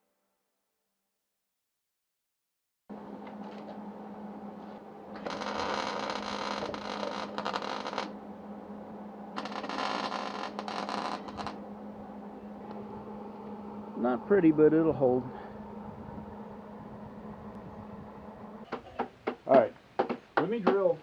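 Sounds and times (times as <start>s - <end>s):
power tool running: 2.9s - 18.8s
steady low hum: 2.9s - 20.0s.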